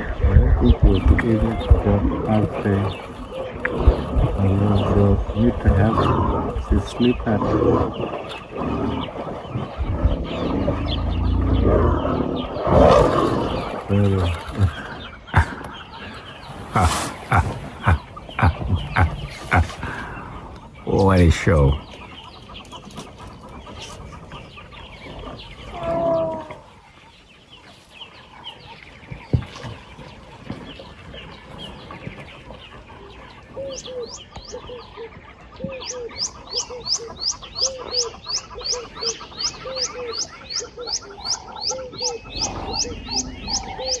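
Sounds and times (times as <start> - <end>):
bird low repeating call: 0.0 - 21.9, 25.6 - 26.7, 33.5 - 44.0
bird rising chirps: 35.8 - 44.0.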